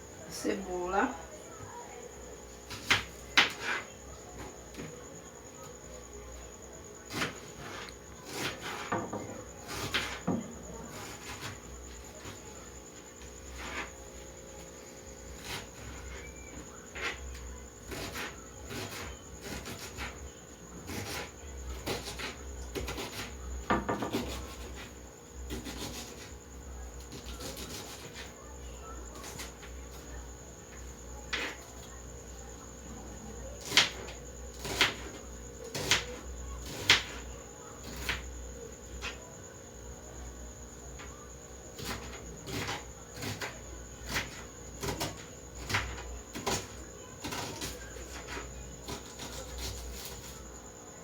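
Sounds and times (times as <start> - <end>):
knife chopping on cutting board: 20.9 - 24.9.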